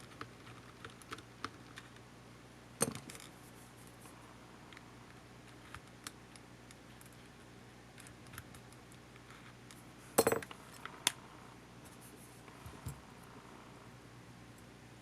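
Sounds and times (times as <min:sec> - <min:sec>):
metal tools clinking on work surface: 0:10.2 - 0:10.5.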